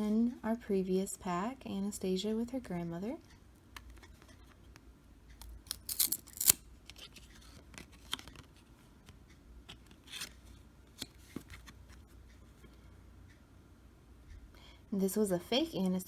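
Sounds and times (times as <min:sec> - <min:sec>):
trading cards sliding and snapping: 0:05.7 - 0:12.0.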